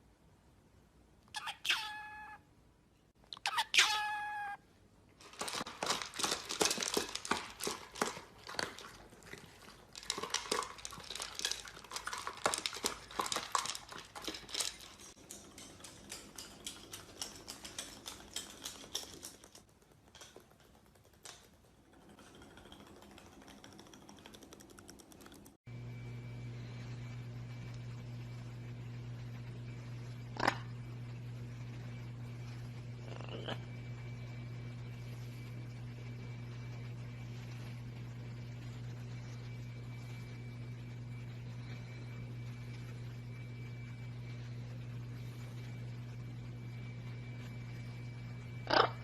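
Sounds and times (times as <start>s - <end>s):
crinkling and clicking: 5.2s - 25.6s
low hum: 21.8s - 49.0s.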